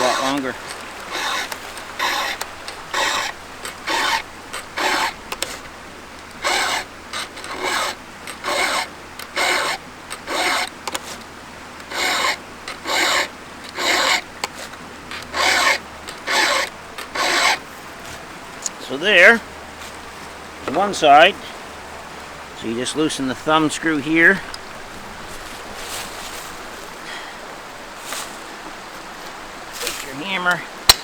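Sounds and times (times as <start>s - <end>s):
file rasping on chain: 0.0s - 5.7s, 6.3s - 18.2s.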